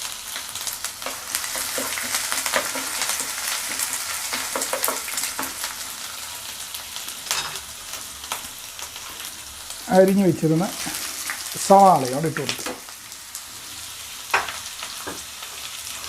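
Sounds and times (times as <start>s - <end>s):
frying in hot oil: 0.0s - 16.0s
spoon stirring in pan: 1.0s - 5.8s.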